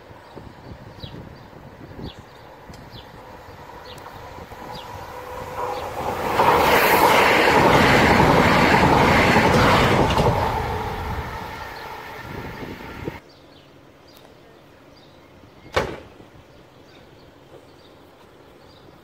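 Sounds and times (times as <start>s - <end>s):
train rushing past: 2.5s - 13.2s
train wheels clattering over rails: 3.6s - 13.1s.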